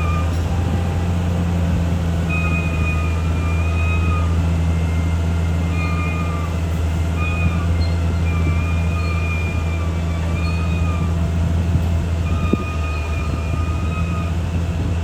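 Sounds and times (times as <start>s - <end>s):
bulldozer diesel engine running: 0.0s - 15.0s
short high squeals: 2.3s - 11.3s, 12.2s - 14.6s.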